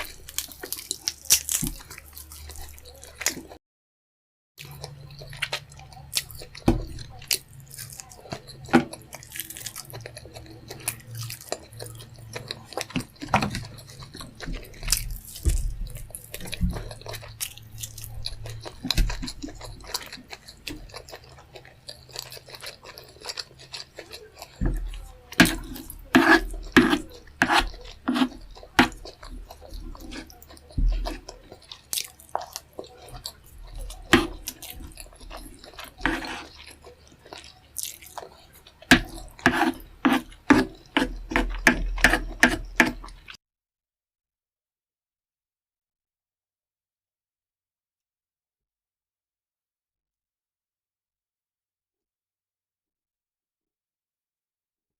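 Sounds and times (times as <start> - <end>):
chewing with wet lip smacks: 0.0 - 3.6, 4.6 - 43.4
food crunching: 0.0 - 3.6, 4.6 - 43.4.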